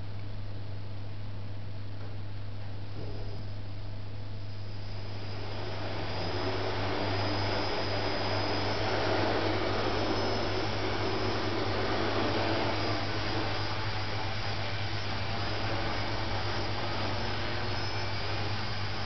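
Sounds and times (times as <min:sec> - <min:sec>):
constant low hum: 0:00.0 - 0:19.0
quadcopter propellers whirring: 0:04.5 - 0:19.0.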